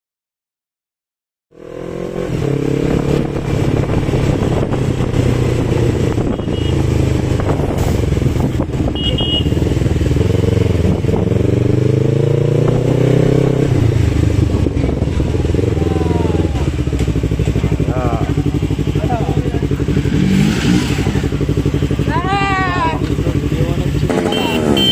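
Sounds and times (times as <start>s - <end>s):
motorcycle engine running: 1.5s - 24.9s
road and wind noise: 1.5s - 24.9s.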